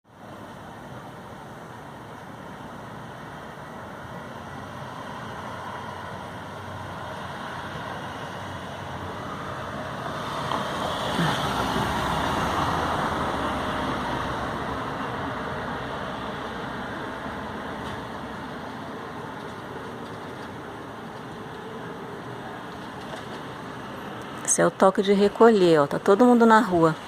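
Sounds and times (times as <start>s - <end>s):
motor vehicle passing by: 4.3s - 24.5s.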